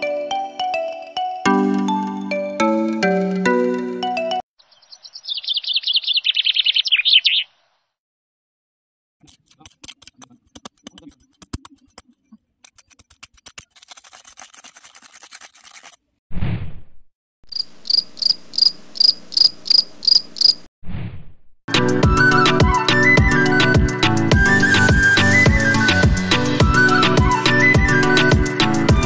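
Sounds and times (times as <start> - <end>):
high chirping: 4.6 - 7.6
metal trowel scraping soil: 9.2 - 16.0.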